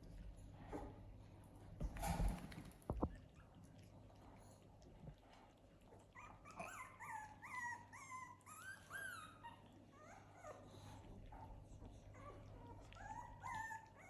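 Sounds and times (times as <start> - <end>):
puppies whimpering: 6.1 - 11.1, 12.0 - 14.0.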